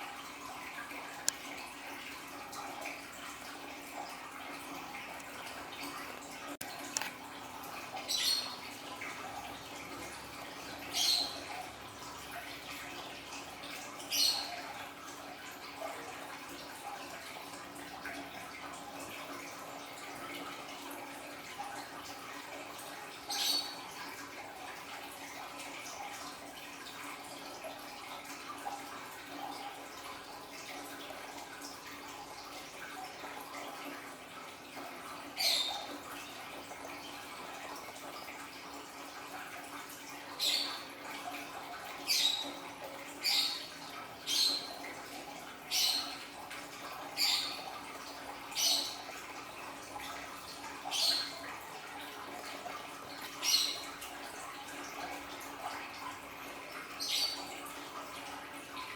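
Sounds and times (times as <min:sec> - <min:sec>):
small waterfall trickling: 0:00.0 - 0:58.9.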